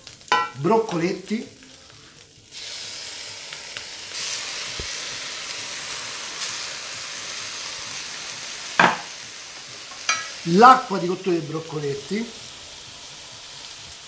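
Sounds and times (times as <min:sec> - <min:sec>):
greens sizzling in hot oil: 0:00.0 - 0:14.0.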